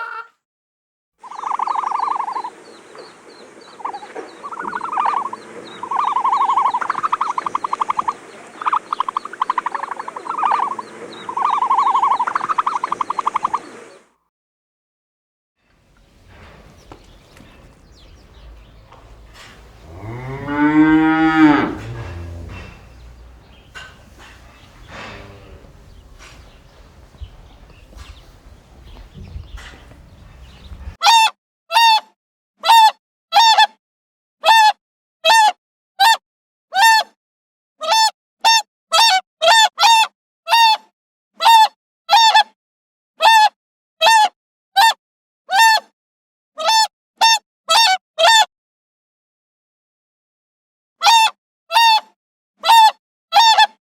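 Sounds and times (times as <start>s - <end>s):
cow mooing: 0.0s - 0.3s, 16.0s - 31.0s
goose honking: 0.0s - 0.3s, 3.8s - 13.6s, 15.9s - 31.0s
faint outdoor background noise: 1.2s - 14.1s, 15.7s - 31.0s.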